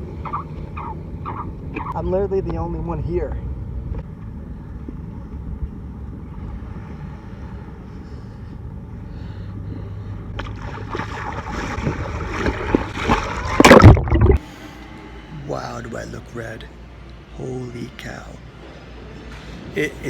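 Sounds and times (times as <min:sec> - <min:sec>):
water sloshing and splashing: 0:09.7 - 0:14.4.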